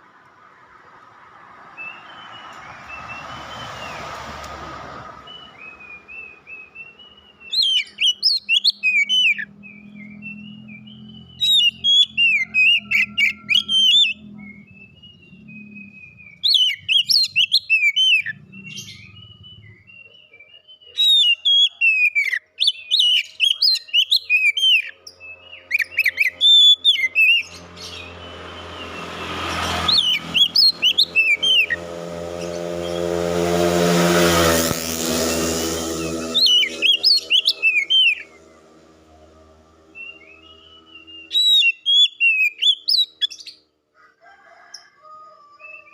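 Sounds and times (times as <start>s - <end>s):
bird whistled song: 1.8s - 4.0s, 5.2s - 29.0s, 29.9s - 31.8s, 36.0s - 38.4s, 39.9s - 43.7s.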